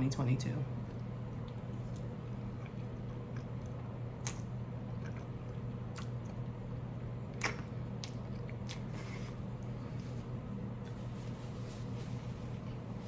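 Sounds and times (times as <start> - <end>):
steady low hum: 0.0 - 13.0
person chewing food: 0.8 - 10.2.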